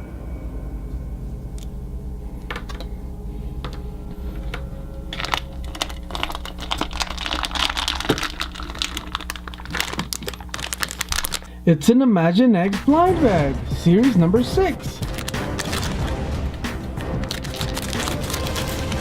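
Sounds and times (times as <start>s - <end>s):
packaging crinkling: 2.3s - 11.6s, 14.4s - 19.0s
scattered clicks: 14.0s - 19.0s.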